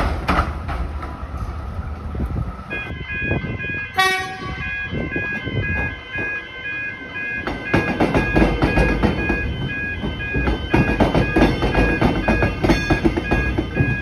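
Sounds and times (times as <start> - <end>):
train wheels clattering: 0.0 - 1.6, 7.4 - 14.0.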